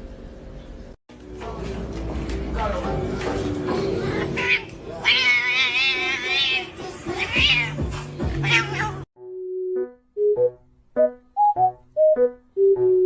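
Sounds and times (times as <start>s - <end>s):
background music: 1.1s - 13.0s
cat meowing: 4.4s - 9.1s
electronic melody: 9.2s - 13.0s.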